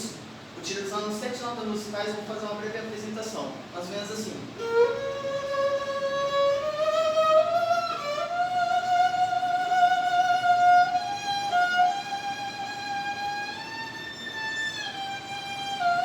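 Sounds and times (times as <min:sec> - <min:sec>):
bowed violin sliding notes: 0:04.6 - 0:16.0.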